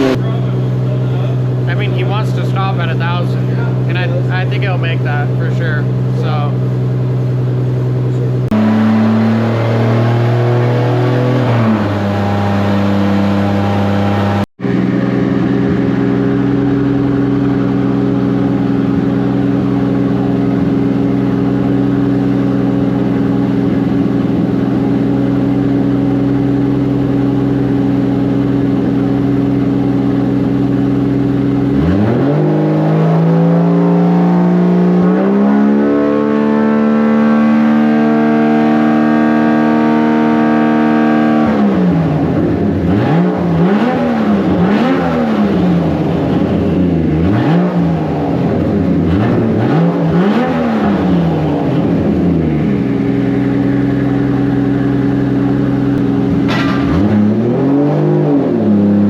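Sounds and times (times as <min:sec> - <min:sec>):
turbocharged car engine revving: 0:00.0 - 0:59.0.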